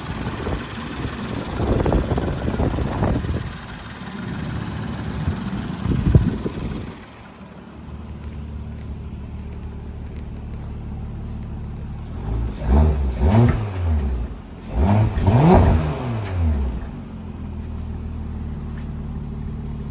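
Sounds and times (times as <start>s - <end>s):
car engine idling: 0.0s - 19.9s
engine revving: 8.3s - 17.3s.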